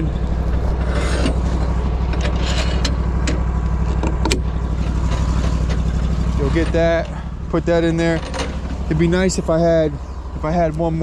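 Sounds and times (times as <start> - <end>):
metal clicks and clanks: 0.0 - 7.2, 8.0 - 8.9
engine idling: 0.0 - 11.0.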